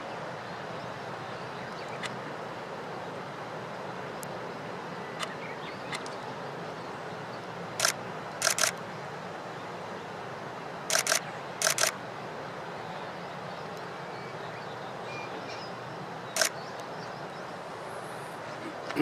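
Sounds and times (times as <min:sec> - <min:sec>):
steady background hiss: 0:00.0 - 0:19.0
camera shutter clicking: 0:07.8 - 0:08.8, 0:10.9 - 0:12.0.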